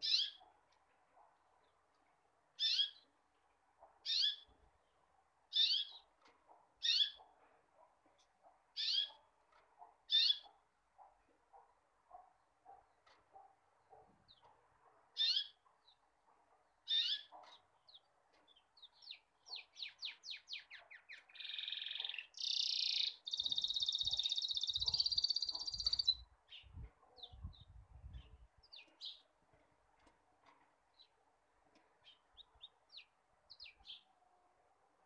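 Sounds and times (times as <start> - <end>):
small bird singing: 0.0 - 0.5, 2.6 - 3.2, 4.0 - 4.6, 5.5 - 6.1, 6.8 - 7.2, 8.8 - 9.2, 10.1 - 10.5, 15.2 - 16.0, 16.8 - 29.4, 31.9 - 34.2.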